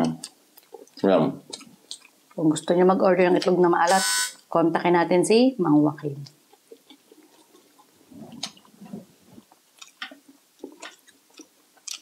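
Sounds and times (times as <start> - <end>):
people chewing food: 0.0 - 3.6, 6.3 - 12.0
wet mouth clicks and smacks: 0.2 - 2.4, 6.5 - 12.0.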